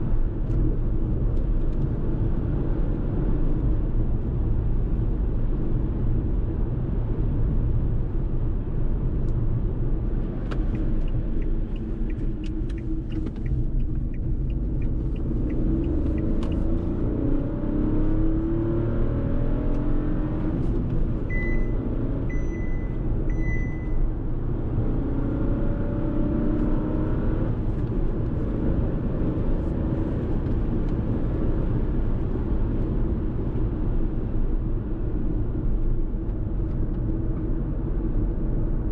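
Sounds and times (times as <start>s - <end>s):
road rumble: 0.0s - 38.9s
car engine accelerating: 6.4s - 34.4s
high-pitched electronic beeps: 21.3s - 24.0s.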